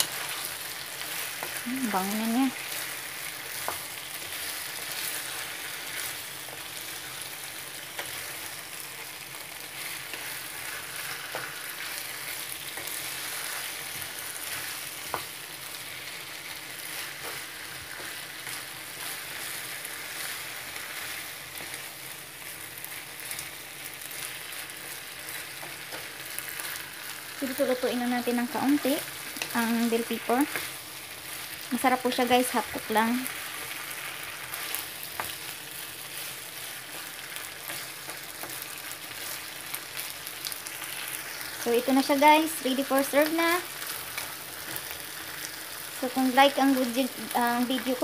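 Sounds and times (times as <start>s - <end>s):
food sizzling in a frying pan: 0.0s - 48.0s.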